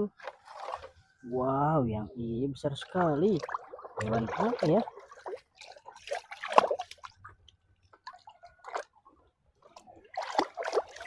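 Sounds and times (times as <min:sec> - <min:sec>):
water dripping and splashing: 0:00.2 - 0:01.0, 0:02.8 - 0:09.0, 0:09.6 - 0:11.0.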